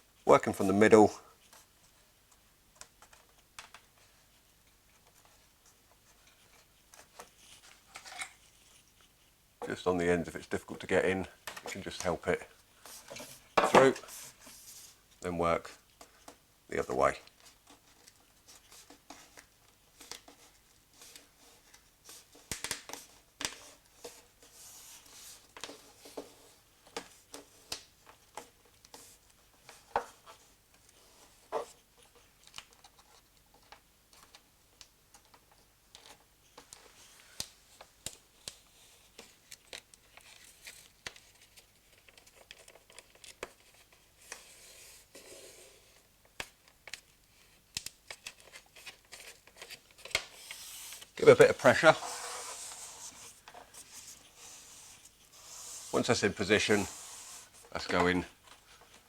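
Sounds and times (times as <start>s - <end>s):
plastic strip clicking and scraping: 46.4s - 51.2s.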